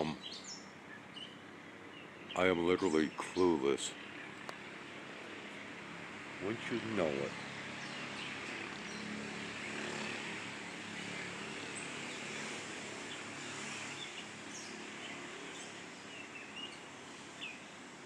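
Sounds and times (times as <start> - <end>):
songbird chirping: 0.0 - 4.9
outdoor background hum: 0.0 - 18.0.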